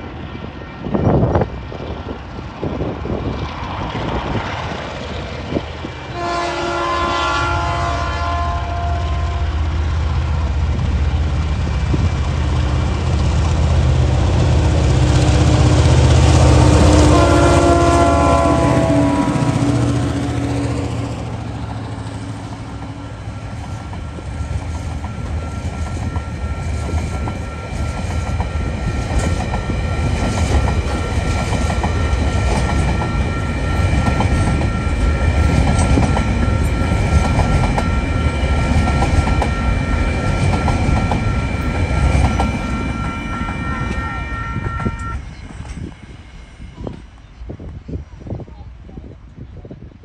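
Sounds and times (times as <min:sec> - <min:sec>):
freight train rumbling past: 0:00.0 - 0:50.0.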